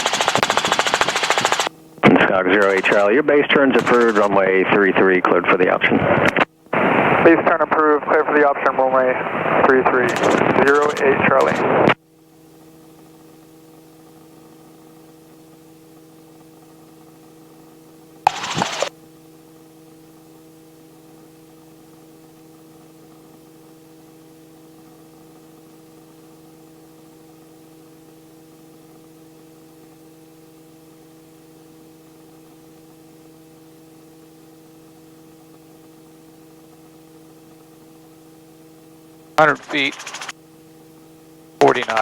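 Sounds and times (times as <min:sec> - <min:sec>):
helicopter hum through intercom: 0:00.0 - 0:06.4, 0:07.2 - 0:12.0, 0:18.3 - 0:18.9, 0:39.4 - 0:40.3, 0:41.6 - 0:42.0.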